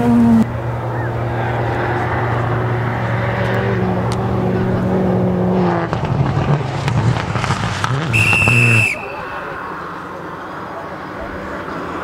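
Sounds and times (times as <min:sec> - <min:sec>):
rally car engine at high revs: 0:00.0 - 0:08.8.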